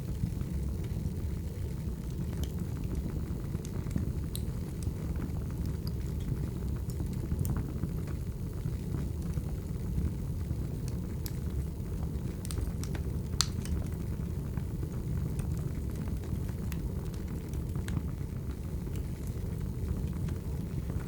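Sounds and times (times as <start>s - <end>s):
logs crackling and popping: 0.0s - 21.0s
wood fire rumbling: 0.0s - 21.0s.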